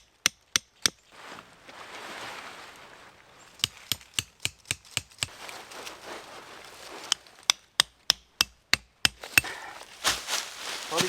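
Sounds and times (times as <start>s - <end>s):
tent stake being hammered: 0.0s - 1.0s, 3.6s - 5.3s, 7.1s - 11.0s.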